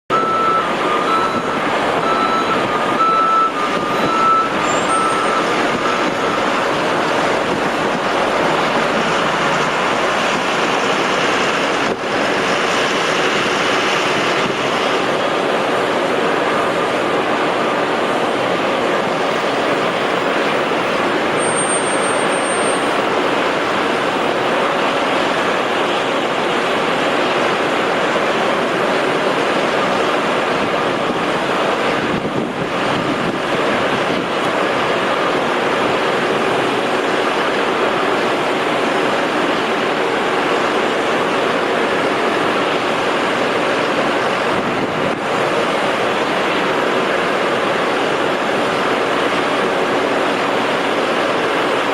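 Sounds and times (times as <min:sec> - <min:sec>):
thin high whistle: 0:00.1 - 0:06.4
jet engines running: 0:00.1 - 0:21.5.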